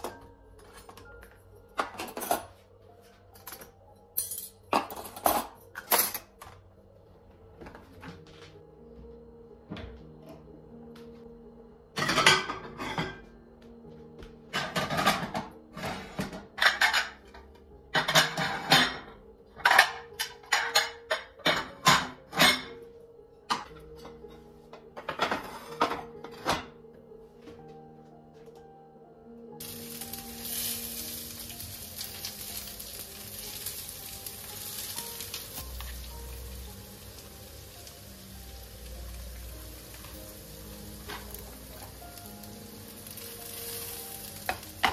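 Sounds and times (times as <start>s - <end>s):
dishes and cutlery clattering: 0.0s - 2.6s, 3.3s - 6.6s, 12.0s - 13.3s, 14.5s - 22.9s, 23.5s - 26.8s, 44.5s - 44.9s
soft background music: 0.0s - 44.9s
frying sizzle with crackles: 29.6s - 44.9s.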